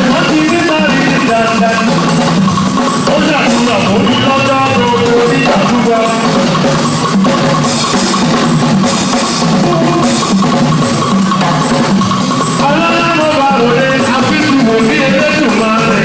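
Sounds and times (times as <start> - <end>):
drum kit playing: 0.0 - 16.0
live band music: 0.0 - 16.0
bass line: 9.5 - 11.9.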